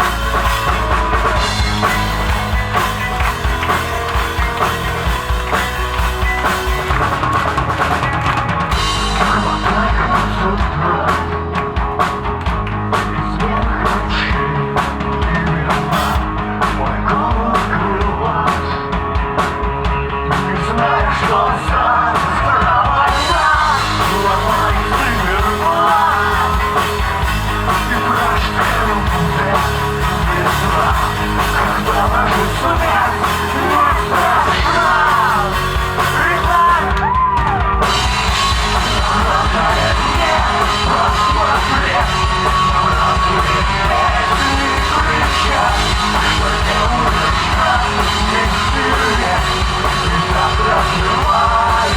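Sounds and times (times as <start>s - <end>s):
live rock band playing: 0.0s - 51.9s
person singing: 27.7s - 51.9s.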